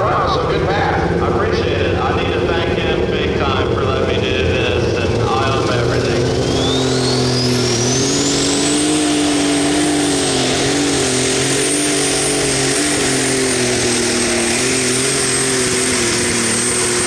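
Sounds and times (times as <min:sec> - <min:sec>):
diesel tractor engine drone: 0:00.0 - 0:17.0
high turbo whistle: 0:05.0 - 0:17.0.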